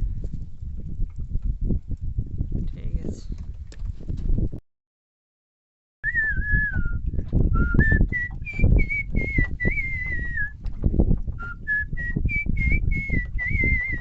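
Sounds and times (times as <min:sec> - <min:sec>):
man whistling a tune: 0:06.0 - 0:10.6, 0:11.4 - 0:14.0.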